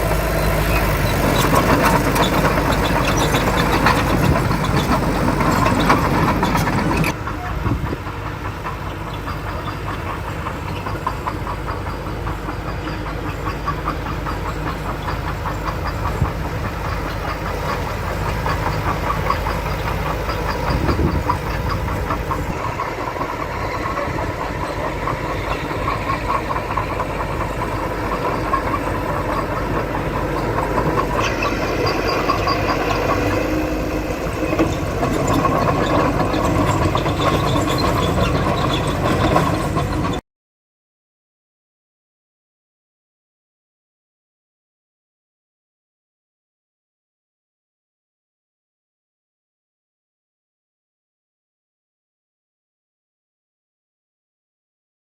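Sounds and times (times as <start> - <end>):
diesel engine clattering: 0.0 - 40.2.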